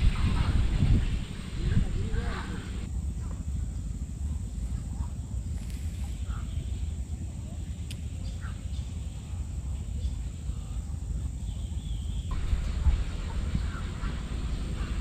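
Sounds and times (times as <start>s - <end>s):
low rumble: 0.0s - 15.0s
faint bird chirps: 3.5s - 15.0s.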